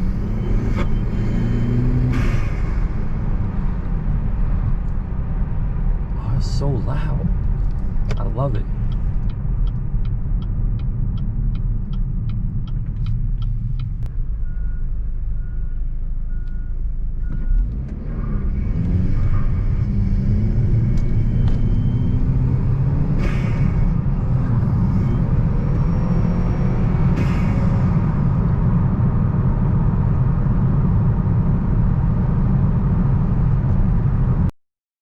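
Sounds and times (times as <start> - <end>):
car engine accelerating: 0.0 - 34.5
steady ticking: 8.0 - 14.1.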